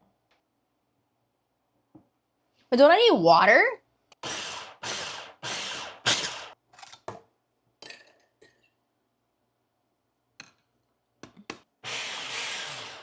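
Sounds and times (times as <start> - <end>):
food processor whirring pulses: 4.2 - 6.6, 11.8 - 13.0.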